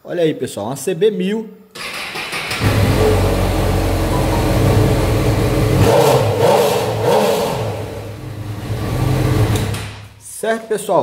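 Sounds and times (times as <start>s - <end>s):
motorcycle engine running: 2.6s - 9.8s.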